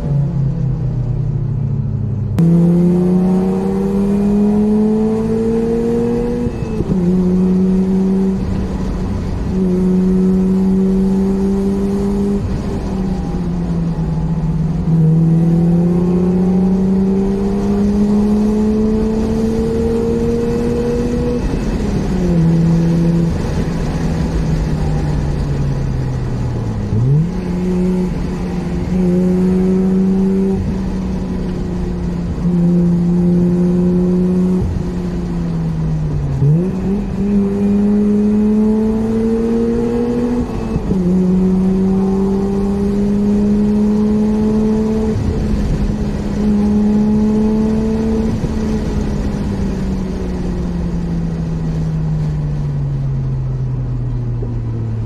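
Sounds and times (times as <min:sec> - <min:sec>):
rotary engine revving: 0:02.4 - 0:13.3.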